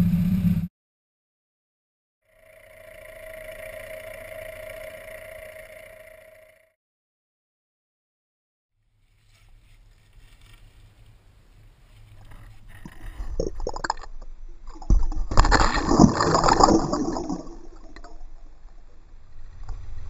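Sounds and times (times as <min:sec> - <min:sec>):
water sloshing and splashing: 0:12.0 - 0:19.0.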